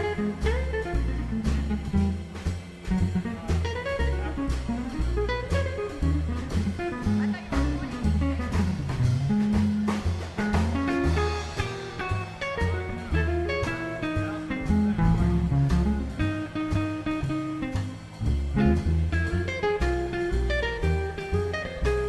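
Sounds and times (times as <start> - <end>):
guitar: 0.0 - 22.0
swing jazz band playing: 0.0 - 22.0.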